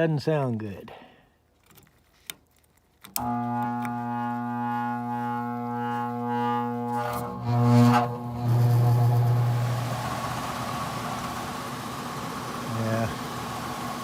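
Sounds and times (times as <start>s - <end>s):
blower motor droning: 3.2s - 14.0s.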